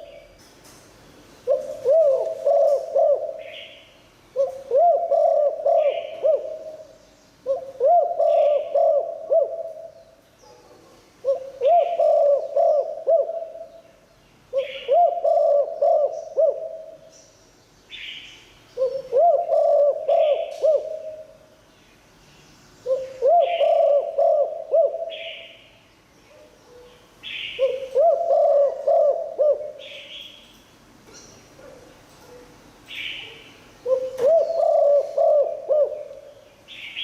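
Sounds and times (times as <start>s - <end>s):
dove cooing: 0.0s - 0.4s, 1.4s - 10.0s, 11.2s - 13.8s, 14.5s - 17.1s, 18.8s - 21.4s, 22.8s - 25.6s, 27.5s - 30.2s, 33.0s - 36.4s.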